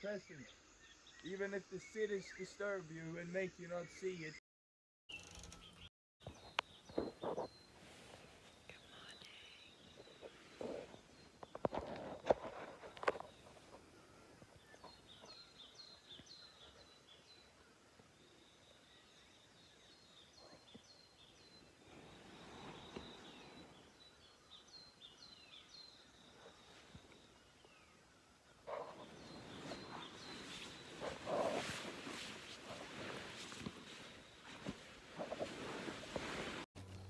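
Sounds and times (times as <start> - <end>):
bird chirping: 0.0 - 4.4, 5.1 - 35.7
loud rustle: 28.9 - 37.0.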